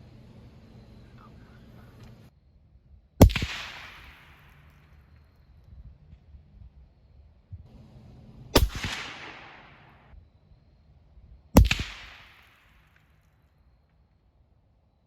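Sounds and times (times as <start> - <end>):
rifle shots cracking with echo: 3.2 - 5.0, 8.6 - 10.1, 11.6 - 13.0.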